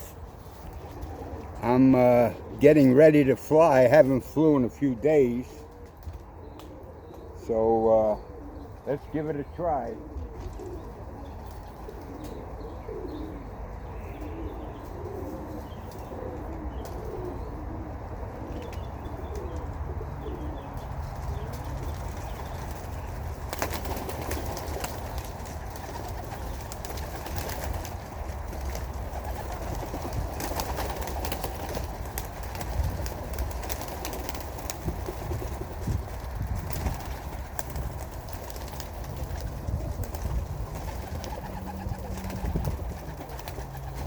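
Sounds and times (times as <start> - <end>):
pigeons cooing: 0.0 - 44.0
pigeon wings flapping: 21.2 - 44.0.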